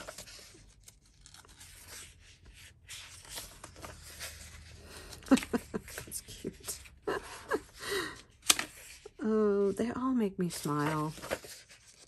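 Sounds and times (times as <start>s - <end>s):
paper pages rustling: 0.0s - 7.7s, 8.4s - 12.0s.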